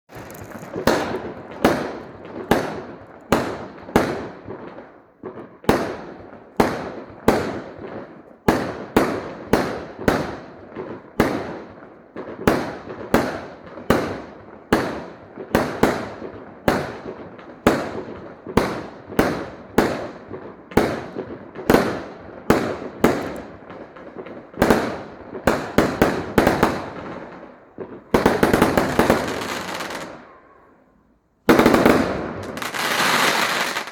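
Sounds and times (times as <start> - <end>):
fireworks bangs: 0.1 - 30.7, 31.5 - 33.9.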